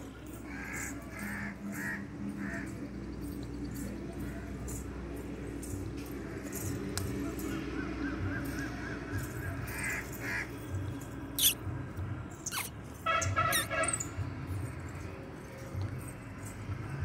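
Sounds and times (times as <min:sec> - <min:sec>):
bird wavering call: 0:11.4 - 0:11.6, 0:12.4 - 0:12.7
harsh bird chattering: 0:11.4 - 0:11.6, 0:12.4 - 0:12.8, 0:13.4 - 0:14.0
sharp downward-sweeping bird calls: 0:11.4 - 0:11.6.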